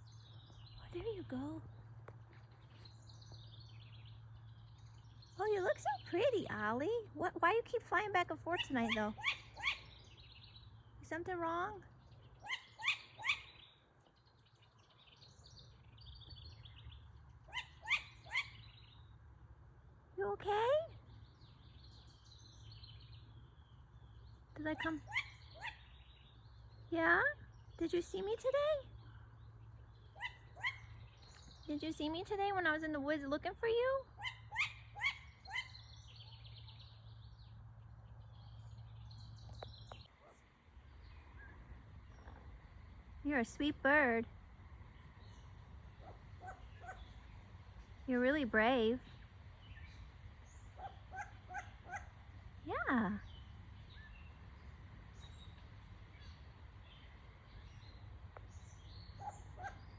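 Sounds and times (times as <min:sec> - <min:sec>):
birds calling: 0:00.0 - 0:59.9
birds twittering: 0:00.0 - 0:59.9
low steady hum: 0:00.0 - 0:59.9
owl calling: 0:08.4 - 0:10.6, 0:12.4 - 0:13.8, 0:17.4 - 0:19.0, 0:24.7 - 0:26.1, 0:30.1 - 0:31.4, 0:34.1 - 0:36.5, 0:45.2 - 0:47.4, 0:48.1 - 0:54.5, 0:57.6 - 0:59.9
faint chirping: 0:20.2 - 0:59.9.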